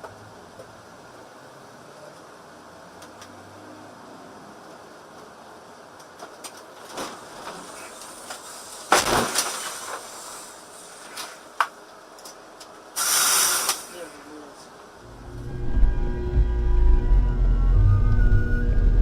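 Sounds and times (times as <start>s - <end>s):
vehicle road noise: 0.0s - 8.8s, 14.8s - 19.0s.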